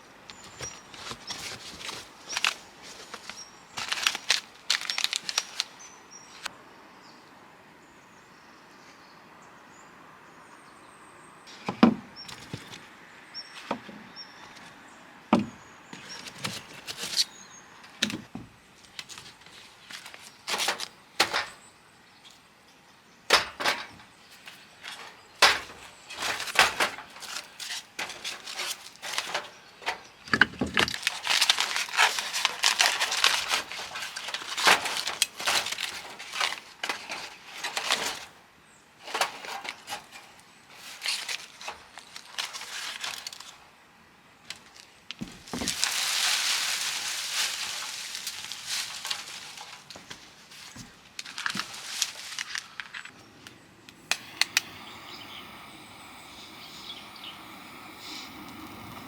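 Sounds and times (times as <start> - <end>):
knocks and rustles of handling: 0.3 - 6.5, 11.7 - 12.9, 13.6 - 21.7, 23.3 - 38.4, 39.0 - 43.6, 44.5 - 53.2.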